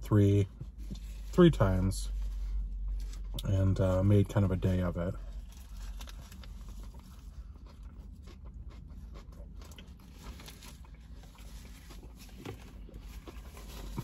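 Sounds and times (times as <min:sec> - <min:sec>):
low steady hum: 0:00.0 - 0:14.0
person chewing: 0:05.3 - 0:14.0.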